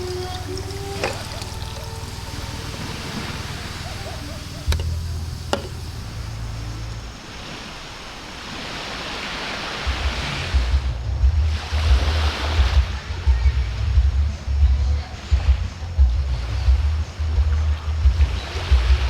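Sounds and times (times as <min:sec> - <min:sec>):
surf washing on beach: 0:00.0 - 0:10.9.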